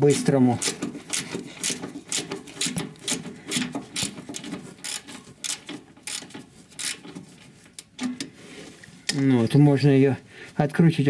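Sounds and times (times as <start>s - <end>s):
ratchet wrench clicking: 0.6s - 7.1s.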